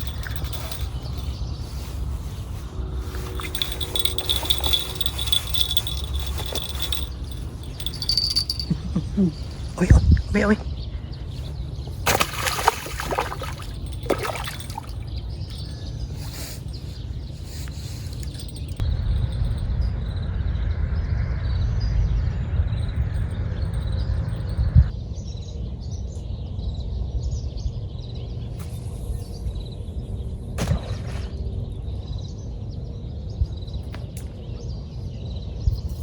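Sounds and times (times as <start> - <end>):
small birds chirping: 0.0 - 18.8
wind rumble on microphone: 0.0 - 28.6, 29.2 - 36.0.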